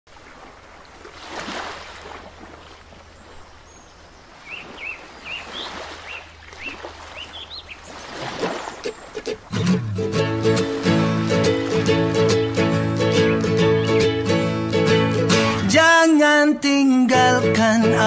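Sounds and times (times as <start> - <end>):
bird chirping: 3.1 - 10.0, 11.9 - 14.3.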